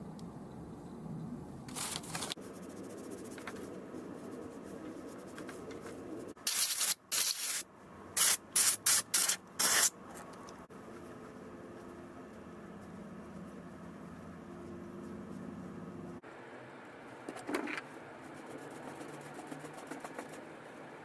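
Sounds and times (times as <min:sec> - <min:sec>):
aerosol spray can bursts: 0:06.5 - 0:07.6, 0:08.2 - 0:09.9.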